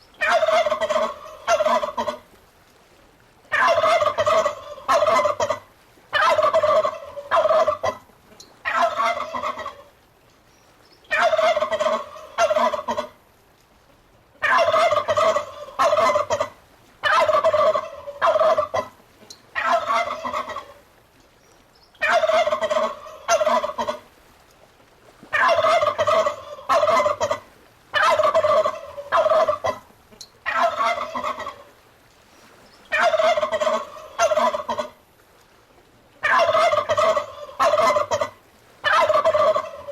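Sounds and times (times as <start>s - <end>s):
turkeys gobbling: 0.2s - 2.2s, 3.5s - 8.0s, 8.6s - 9.9s, 11.1s - 13.1s, 14.4s - 18.9s, 19.6s - 20.8s, 22.0s - 24.0s, 25.3s - 31.7s, 32.9s - 35.0s, 36.2s - 39.9s.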